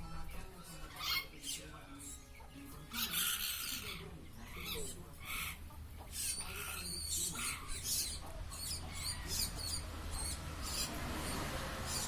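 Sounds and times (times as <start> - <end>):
parrot squeaky begging calls: 2.9 - 12.0.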